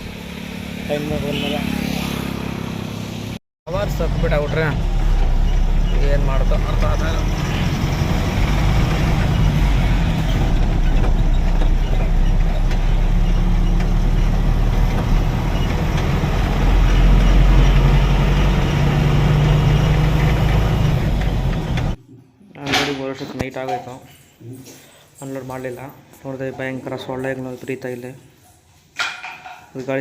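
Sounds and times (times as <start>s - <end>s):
truck engine running: 3.7s - 22.0s.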